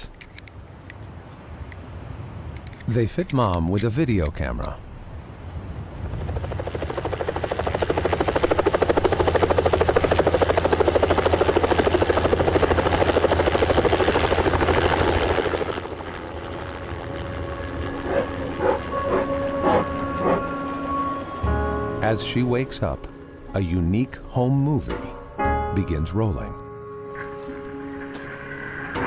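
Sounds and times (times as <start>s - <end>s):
helicopter rotor chopping: 5.8s - 21.4s.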